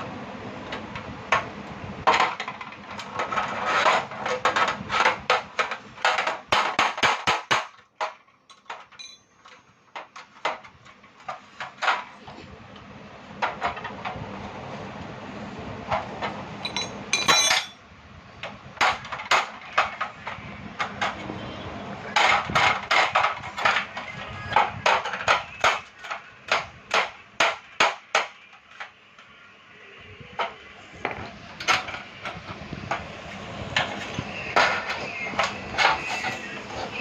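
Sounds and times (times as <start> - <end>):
ringing metal clatter: 8.5 - 9.3, 16.6 - 17.8.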